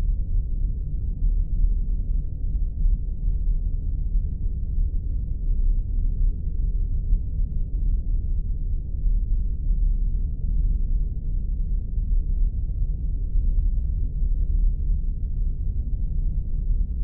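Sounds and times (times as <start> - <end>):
deep rumbling spaceship drone: 0.0 - 17.0.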